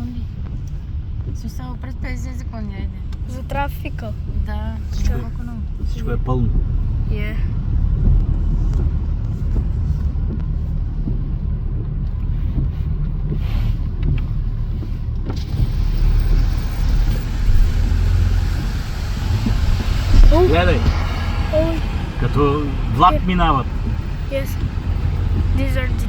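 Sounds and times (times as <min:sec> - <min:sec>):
road traffic rumble inside car: 0:00.0 - 0:26.0
hiss of passing traffic: 0:14.8 - 0:26.0.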